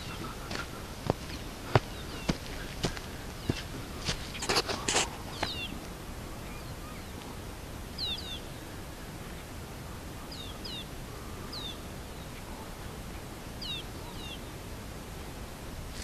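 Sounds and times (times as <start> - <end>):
bird calling: 0.0 - 7.4
steady background noise: 0.0 - 16.0.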